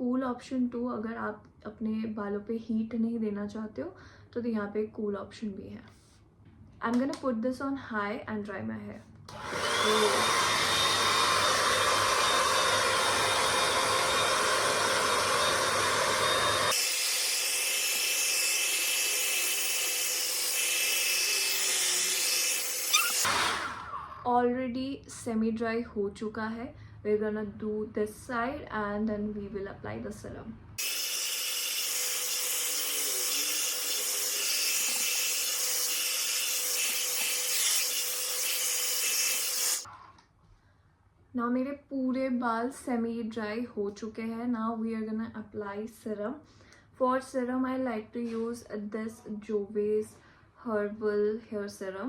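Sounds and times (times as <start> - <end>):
hair dryer blowing: 9.3 - 24.2.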